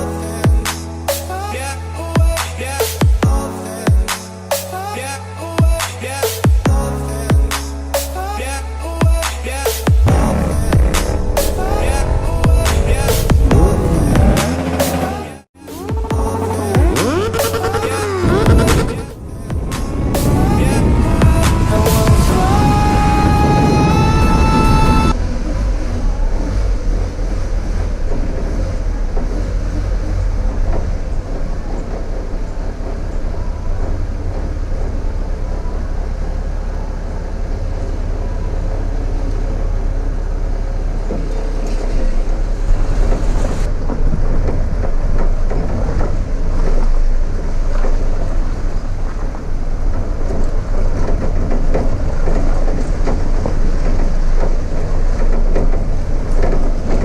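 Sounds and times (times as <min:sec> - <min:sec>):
road and wind noise rumble: 0:08.6 - 0:15.2, 0:16.2 - 0:57.0
vehicle rattles: 0:25.1 - 0:57.0.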